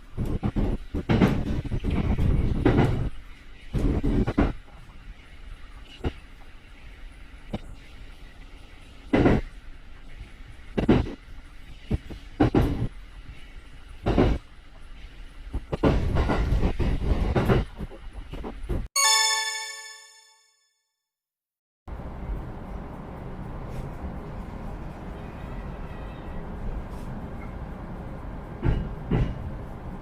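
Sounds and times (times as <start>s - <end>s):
train running on rails: 0.0s - 19.9s, 21.9s - 30.0s
bell-like chime: 19.0s - 20.6s.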